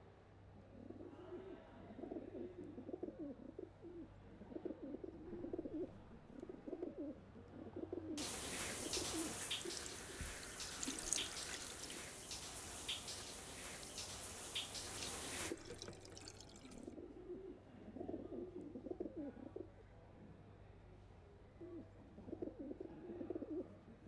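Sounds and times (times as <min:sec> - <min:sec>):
pigeons cooing: 0:08.2 - 0:15.5
rain hissing with drips: 0:08.2 - 0:16.8.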